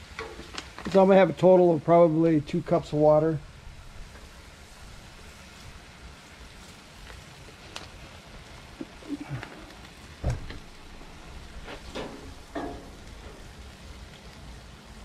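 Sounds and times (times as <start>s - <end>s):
meat sizzling in a skillet: 0.0s - 1.4s, 2.1s - 15.0s.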